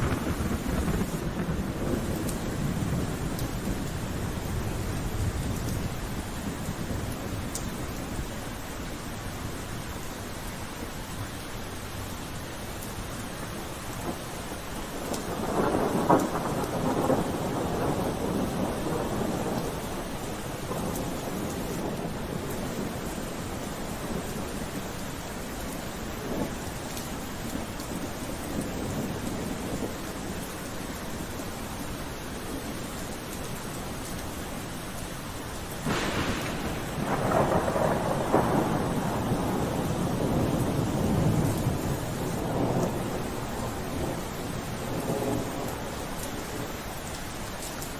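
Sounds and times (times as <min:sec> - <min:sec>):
thunder rumbling: 0:00.0 - 0:08.4, 0:13.9 - 0:31.0, 0:35.8 - 0:47.5
steady rain: 0:00.0 - 0:47.9.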